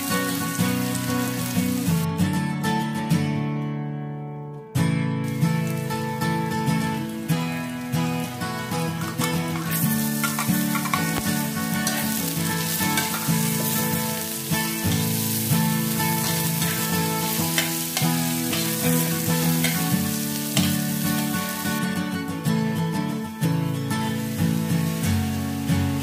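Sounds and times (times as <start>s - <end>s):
onion sizzling in hot oil: 0.0s - 2.1s, 5.2s - 22.1s, 23.7s - 26.0s
spatula stirring in wok: 14.9s - 20.8s.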